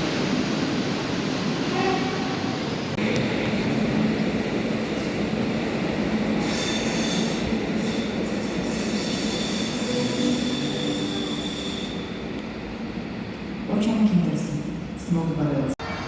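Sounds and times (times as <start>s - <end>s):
train rumbling: 0.0s - 15.7s
train wheels squealing: 6.4s - 12.2s.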